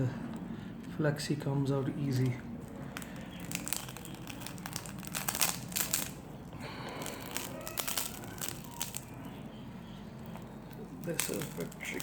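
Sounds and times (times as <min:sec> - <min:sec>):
screen peeling off adhesive: 0:02.9 - 0:06.2, 0:06.9 - 0:09.2, 0:10.3 - 0:12.0.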